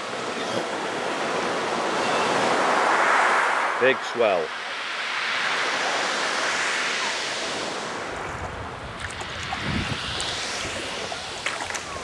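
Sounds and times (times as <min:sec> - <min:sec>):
sea swell surging and washing: 0:00.0 - 0:12.0
wind on microphone: 0:05.6 - 0:12.0.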